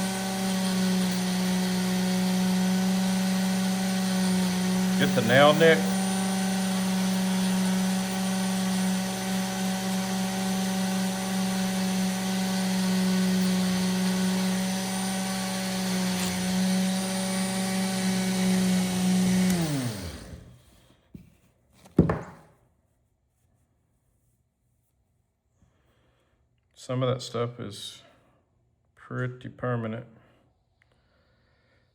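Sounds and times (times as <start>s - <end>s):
electric polishing tool running: 0.0s - 20.5s
falling whine of tool spinning down: 2.2s - 20.5s.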